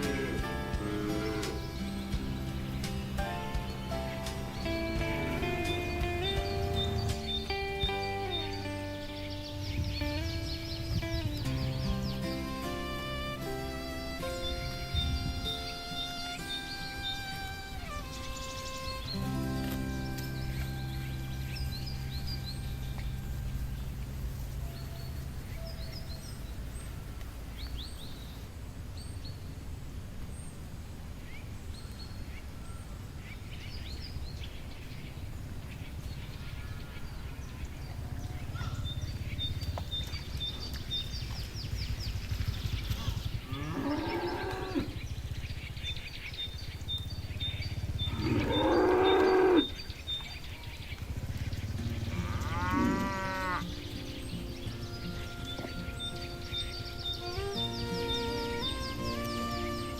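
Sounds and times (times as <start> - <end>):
cows mooing: 0.0 - 8.6, 42.9 - 45.1, 47.4 - 50.2, 51.0 - 59.9
birds chirping: 0.0 - 59.9
low background rumble: 0.0 - 59.9.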